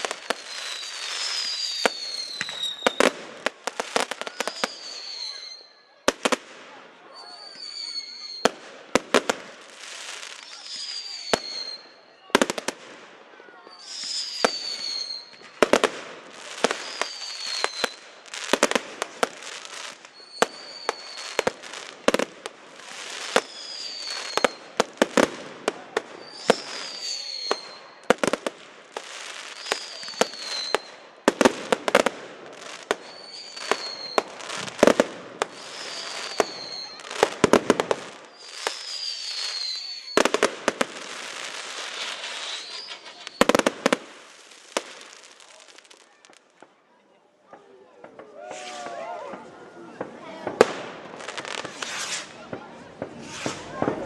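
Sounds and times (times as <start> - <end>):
fireworks bursting bangs: 0.0 - 46.8, 47.5 - 54.0
firework whistle falling in pitch: 0.4 - 3.1, 4.3 - 5.8, 7.2 - 8.6, 10.3 - 12.1, 13.6 - 15.6, 16.7 - 18.0, 20.0 - 21.6, 23.3 - 24.7, 26.2 - 28.0, 29.5 - 31.0, 33.0 - 34.7, 35.5 - 37.3, 38.3 - 40.4, 42.0 - 43.6, 48.2 - 49.8.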